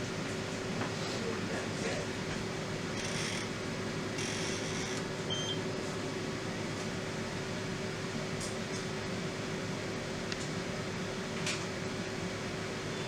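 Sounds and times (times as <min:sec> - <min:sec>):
electrical hum: 0:00.0 - 0:08.3.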